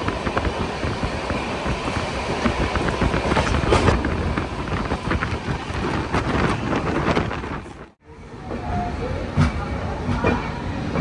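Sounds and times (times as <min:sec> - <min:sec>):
train rumbling along track: 0:00.0 - 0:11.0.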